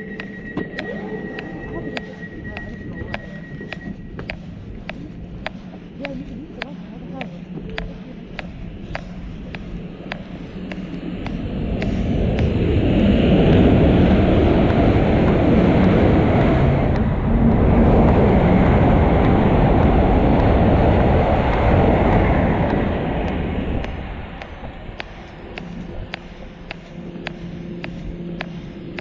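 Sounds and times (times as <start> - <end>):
train passing at speed: 9.8 - 29.0.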